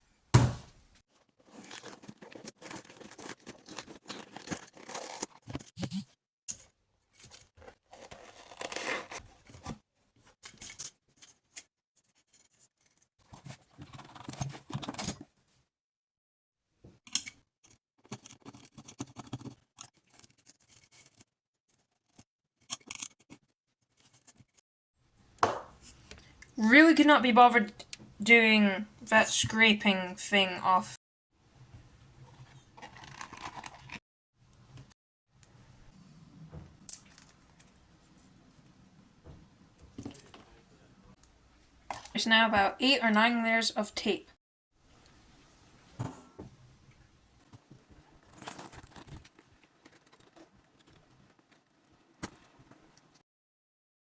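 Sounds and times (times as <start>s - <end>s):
scraping and tearing: 1.4s - 6.0s, 7.2s - 9.7s, 32.3s - 34.0s, 48.2s - 52.6s.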